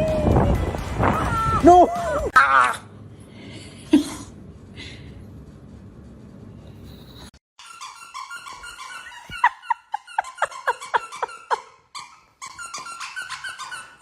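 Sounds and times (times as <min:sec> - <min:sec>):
dog squealing and whining: 0:07.6 - 0:14.0
dog yelping: 0:07.6 - 0:14.0.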